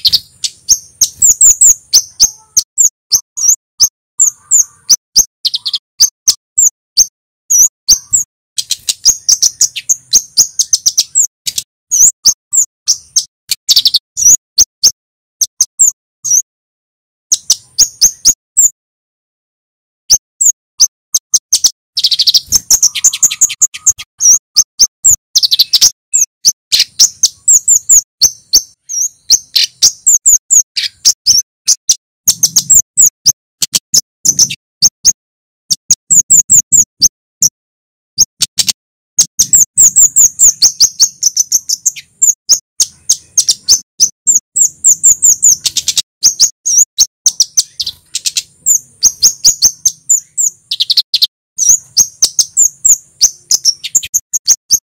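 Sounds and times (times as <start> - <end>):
bird calling sharp high notes: 0.0 - 16.4, 20.1 - 35.2.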